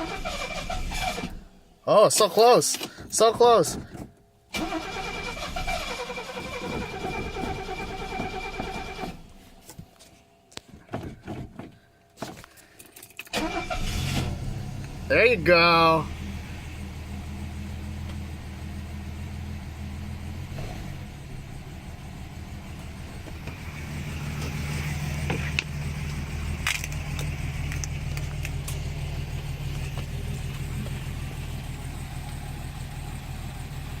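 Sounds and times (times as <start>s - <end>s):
car engine running: 14.0s - 34.0s.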